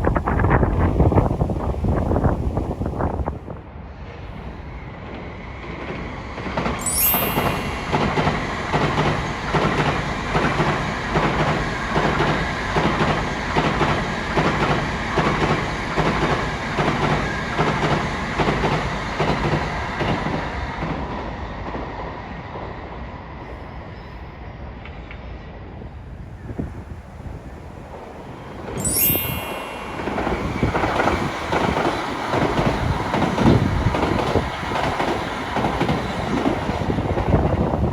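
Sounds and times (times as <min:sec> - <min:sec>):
train wheels clattering: 0:04.4 - 0:21.1, 0:26.4 - 0:37.9.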